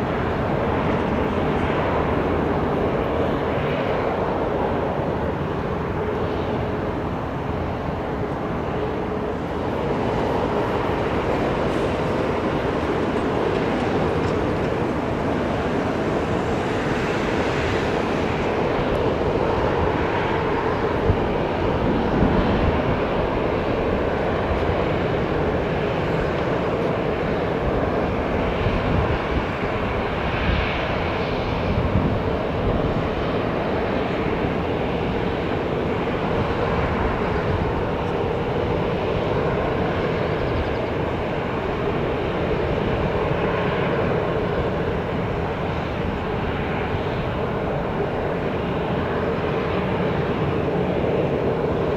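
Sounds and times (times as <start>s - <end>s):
airliner engines roaring: 0.0s - 51.9s.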